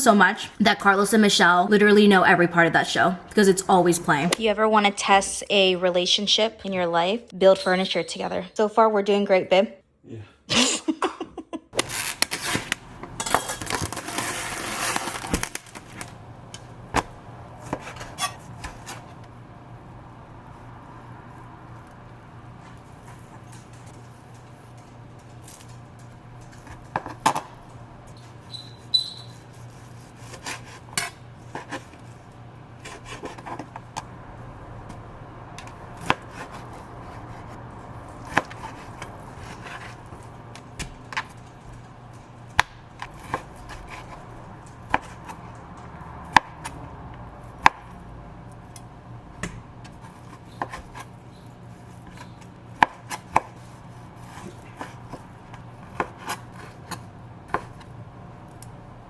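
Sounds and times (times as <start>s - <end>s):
steady low hum: 12.2s - 59.0s.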